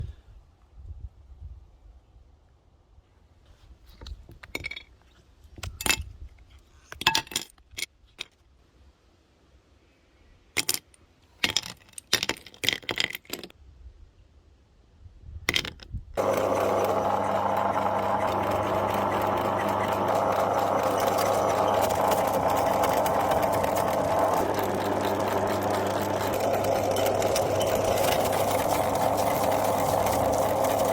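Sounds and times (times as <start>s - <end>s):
electric meat grinder motor humming: 16.2s - 30.9s
hard candies clattering: 16.2s - 30.9s.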